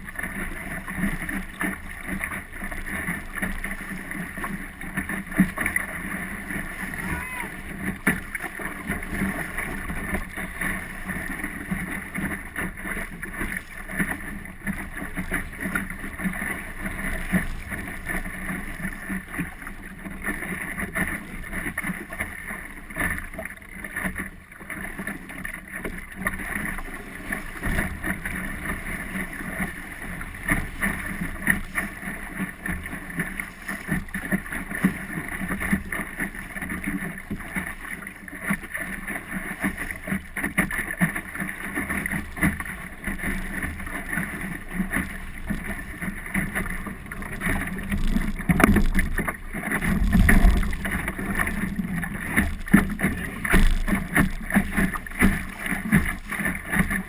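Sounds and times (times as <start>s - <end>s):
water rushing past boat: 0.0s - 57.0s
small crackles: 6.7s - 57.0s.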